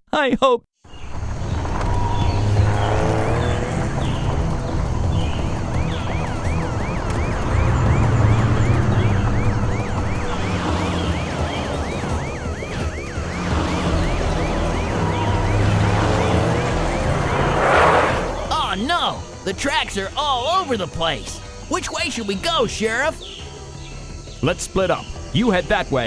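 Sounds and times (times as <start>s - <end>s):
low vehicle engine rumble: 0.9s - 20.4s
cartoon police siren yelping: 5.4s - 19.4s.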